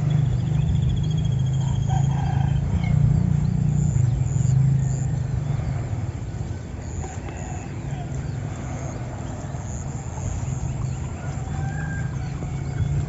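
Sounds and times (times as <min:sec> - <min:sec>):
bird chirps: 0:00.0 - 0:05.5
small engine humming: 0:00.0 - 0:13.0.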